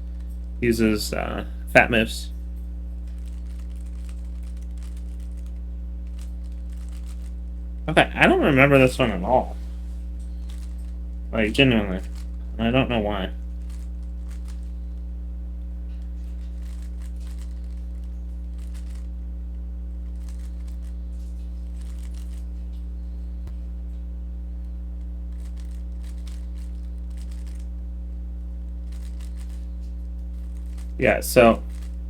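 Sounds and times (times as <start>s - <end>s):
steady low hum: 0.0s - 32.0s
plastic cube clicking and scraping: 3.2s - 7.4s, 16.4s - 19.1s, 20.1s - 20.9s, 21.7s - 22.4s, 25.3s - 27.7s, 28.9s - 29.6s, 31.6s - 32.0s.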